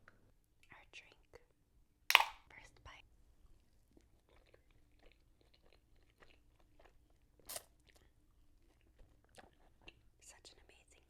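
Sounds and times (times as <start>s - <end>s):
chewing crunchy chips: 3.8s - 10.6s.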